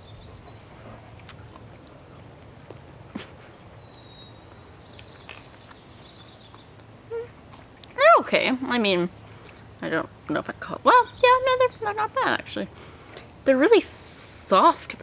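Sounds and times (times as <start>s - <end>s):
chewing soft food: 0.4s - 8.0s.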